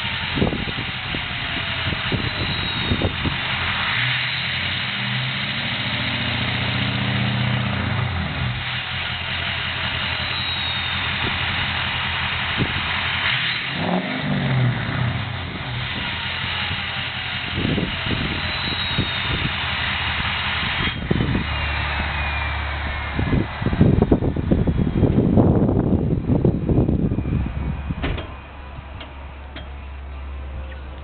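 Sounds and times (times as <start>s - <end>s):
diesel truck engine idling: 0.0s - 31.0s
turbo whistle: 0.1s - 5.0s, 8.6s - 14.4s, 15.1s - 23.4s.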